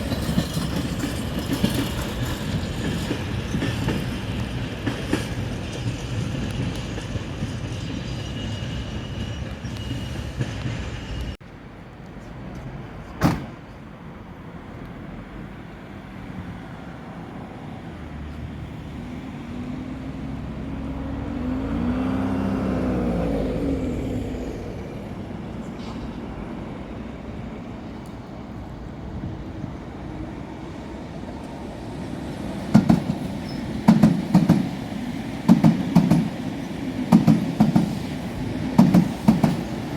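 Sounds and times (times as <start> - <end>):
train passing: 0.0 - 39.9.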